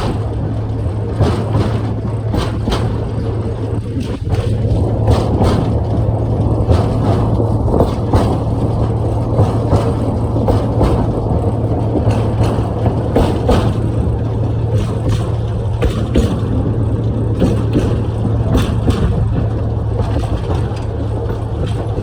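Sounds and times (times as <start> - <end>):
train engine hum: 0.0 - 22.0
wheels clicking and knocking: 0.0 - 22.0.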